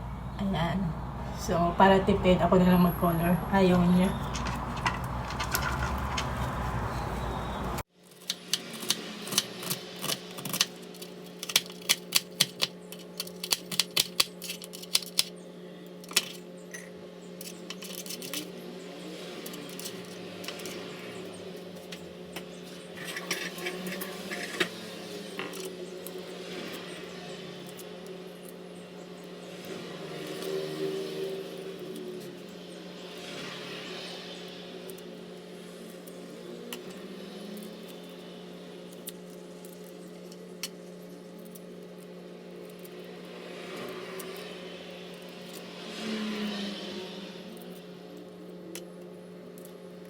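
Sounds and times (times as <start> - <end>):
kitchen utensils knocking and clinking: 4.1 - 6.6.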